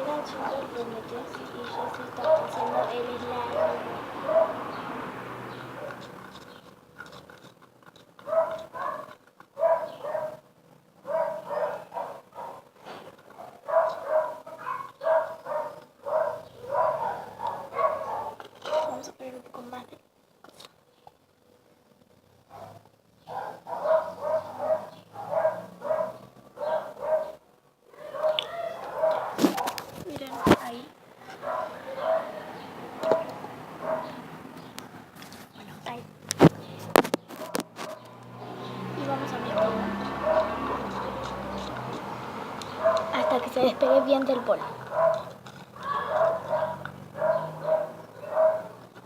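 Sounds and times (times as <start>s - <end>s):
small dog barking: 1.3s - 4.8s, 8.2s - 10.4s, 11.0s - 12.7s, 13.3s - 19.1s, 22.5s - 34.3s, 37.4s - 38.2s, 39.2s - 48.9s.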